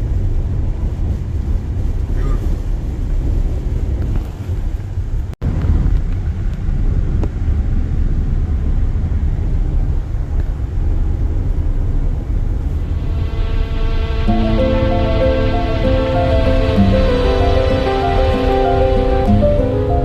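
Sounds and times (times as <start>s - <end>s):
vehicle cabin road noise: 0.0s - 13.6s
music: 13.0s - 20.0s.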